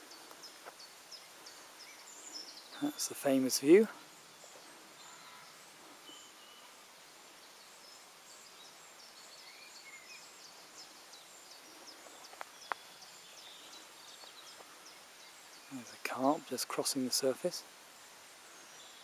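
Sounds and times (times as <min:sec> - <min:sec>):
faint outdoor ambience: 0:00.0 - 0:19.0
small birds chirping: 0:00.0 - 0:19.0.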